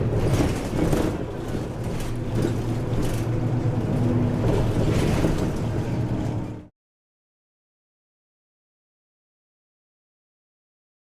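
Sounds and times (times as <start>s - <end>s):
bus engine hum: 0.0s - 6.7s
road noise: 0.0s - 6.7s.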